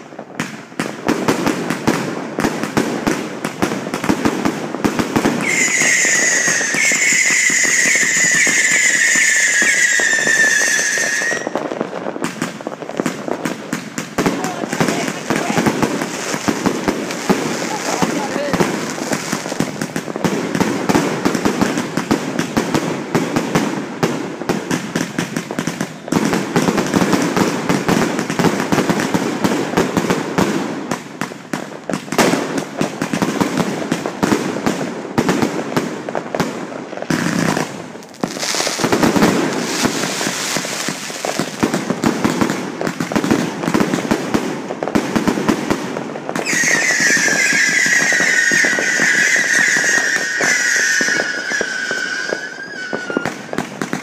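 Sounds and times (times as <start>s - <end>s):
fireworks crackling and banging: 0.0s - 54.0s
high firework whistle: 5.2s - 11.8s, 46.4s - 53.6s.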